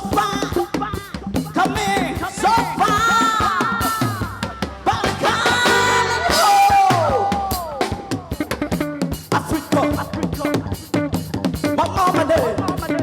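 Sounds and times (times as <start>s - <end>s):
person singing wordless notes: 0.0s - 8.6s
drum kit and bass: 0.0s - 13.0s.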